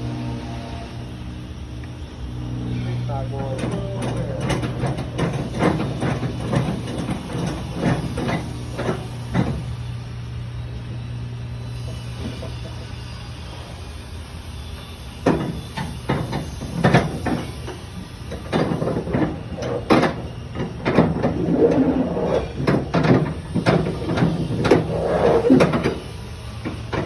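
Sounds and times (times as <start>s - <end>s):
strap hardware clanking and rattling: 3.1s - 9.7s, 15.3s - 27.0s.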